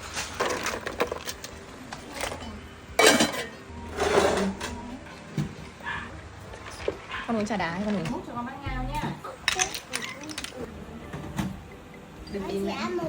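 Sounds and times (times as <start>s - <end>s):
dishes and cutlery clinking: 0.1s - 5.7s, 9.0s - 12.8s
loud dish clatter: 2.2s - 4.8s.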